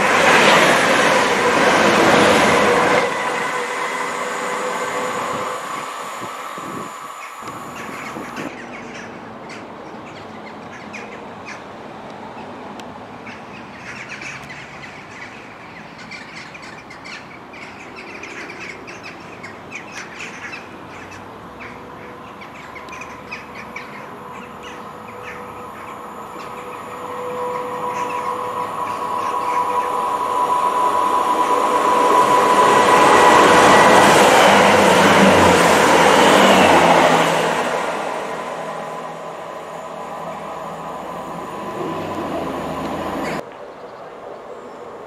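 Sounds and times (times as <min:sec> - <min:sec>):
train humming: 0:00.0 - 0:08.7, 0:21.3 - 0:43.4
birds chirping and singing: 0:15.9 - 0:31.6.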